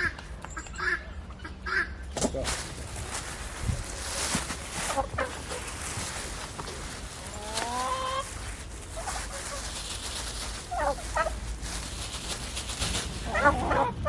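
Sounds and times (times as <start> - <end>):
farm animal warbling calls: 7.2 - 8.4, 10.6 - 11.4, 13.2 - 14.0.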